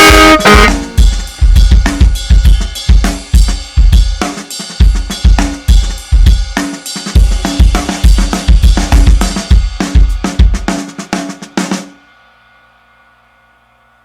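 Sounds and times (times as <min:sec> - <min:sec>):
snare drum hits: 0:00.0 - 0:01.0
kick drum: 0:00.0 - 0:04.1, 0:07.2 - 0:10.7
cymbals: 0:00.0 - 0:09.9.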